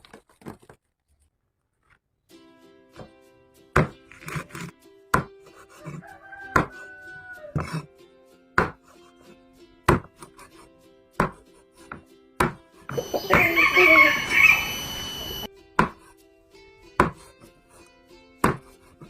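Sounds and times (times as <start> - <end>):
background music: 2.3 - 19.0
knife chopping on cutting board: 3.8 - 5.4, 6.6 - 6.8, 8.6 - 8.9, 9.9 - 10.3, 11.2 - 12.6, 15.8 - 16.1, 17.0 - 17.3, 18.4 - 19.0.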